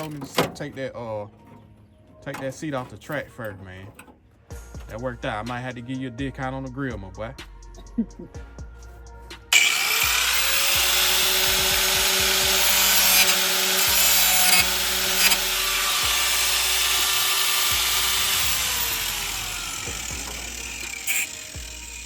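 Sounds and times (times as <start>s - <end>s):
angle grinder cutting sheet metal: 9.5s - 22.0s.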